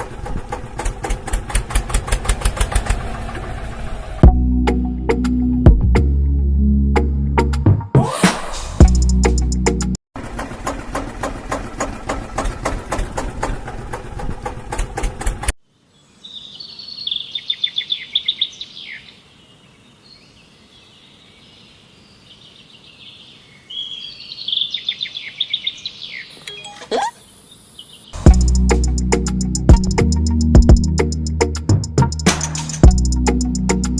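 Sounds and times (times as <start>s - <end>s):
rapid mechanical rattling: 0.0s - 4.1s, 10.2s - 15.5s
birds chirping: 15.8s - 28.9s.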